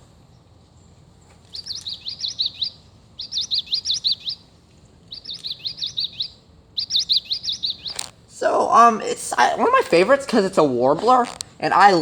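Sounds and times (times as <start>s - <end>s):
recorded birdsong from toy: 0.3s - 8.2s.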